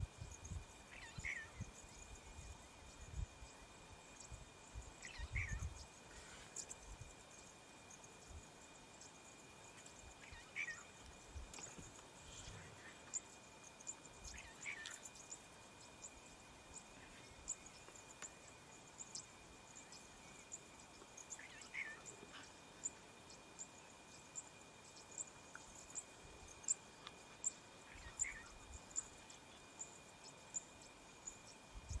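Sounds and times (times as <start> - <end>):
high insect drone: 0.0 - 32.0
falling bird calls: 14.2 - 15.2, 21.3 - 23.0, 27.8 - 28.6.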